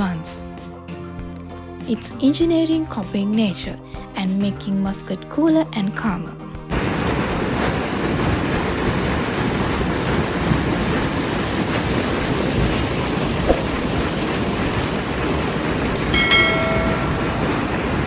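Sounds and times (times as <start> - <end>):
water pouring over rocks: 7.0 - 16.2.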